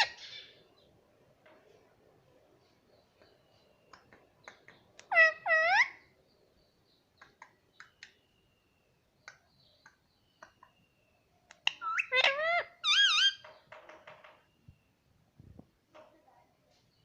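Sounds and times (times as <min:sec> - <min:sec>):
baby parrot chirping and squawking: 0:00.0 - 0:00.5, 0:05.0 - 0:06.0, 0:11.6 - 0:13.4.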